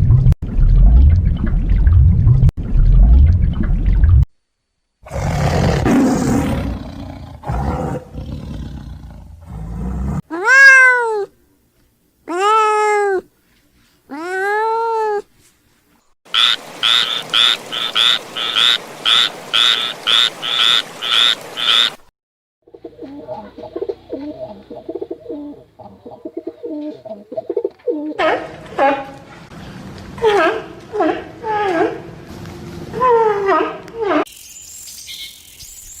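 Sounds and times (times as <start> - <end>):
cat meowing: 10.3 - 11.3, 12.3 - 13.3, 14.1 - 15.3.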